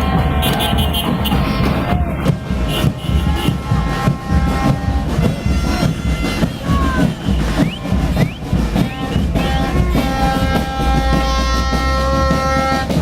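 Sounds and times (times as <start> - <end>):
horns blowing: 0.0 - 13.0
vehicle engines rumbling: 0.0 - 13.0
rising whoops: 1.7 - 2.4.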